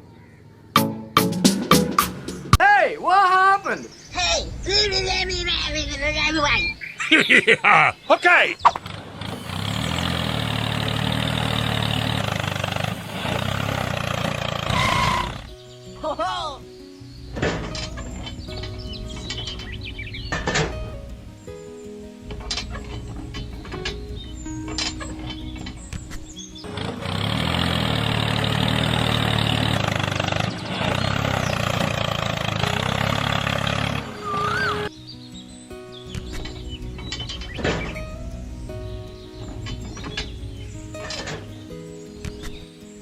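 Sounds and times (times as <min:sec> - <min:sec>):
engine running: 0:08.6 - 0:16.0, 0:17.2 - 0:34.9, 0:36.1 - 0:42.8.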